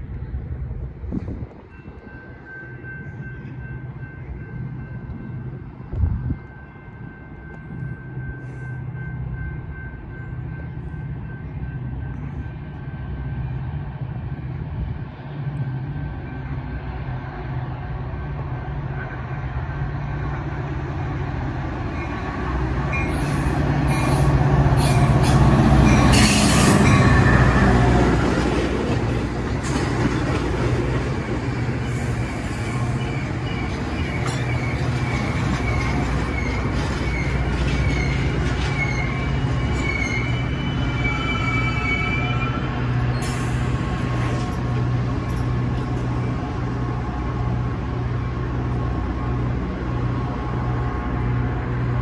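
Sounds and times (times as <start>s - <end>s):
train rumbling: 0.0s - 52.0s
train brake squeal: 8.3s - 8.9s, 23.0s - 27.6s, 31.8s - 44.0s.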